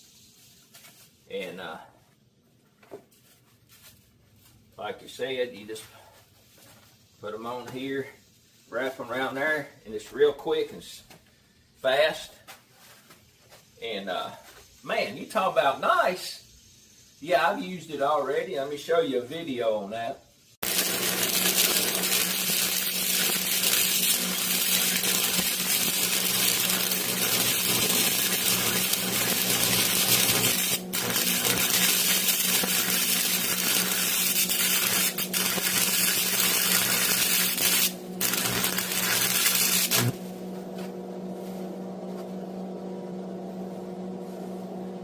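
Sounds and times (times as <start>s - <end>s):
welding arc crackling sizzle: 20.6s - 42.8s
welder electrical hum: 20.6s - 45.0s.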